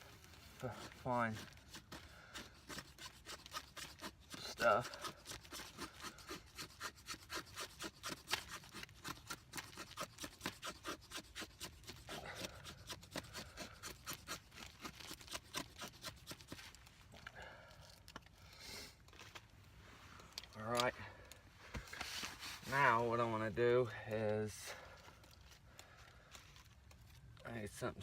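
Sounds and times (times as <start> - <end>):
knife scraping wooden stick: 0.6 - 16.8.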